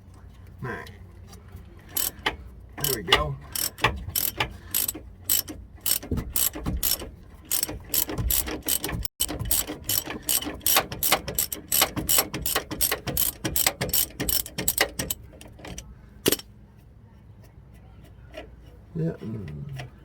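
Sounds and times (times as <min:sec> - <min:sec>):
ratchet wrench clicking: 0:01.9 - 0:16.4.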